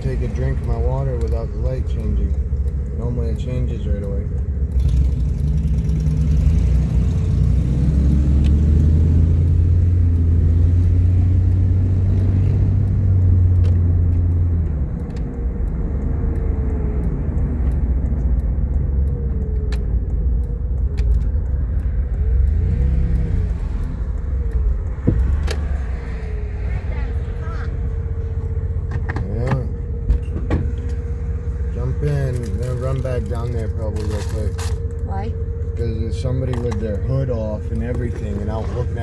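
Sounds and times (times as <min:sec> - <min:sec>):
vehicle engine and road rumble: 0:00.0 - 0:39.0.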